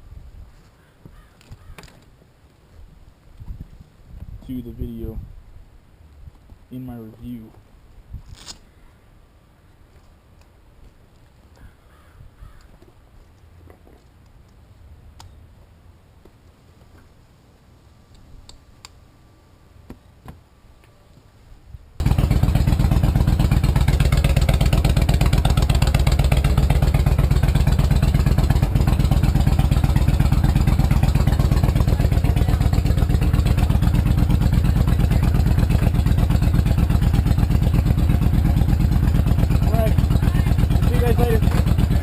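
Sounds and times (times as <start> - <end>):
motorcycle engine idling: 22.0 - 42.0.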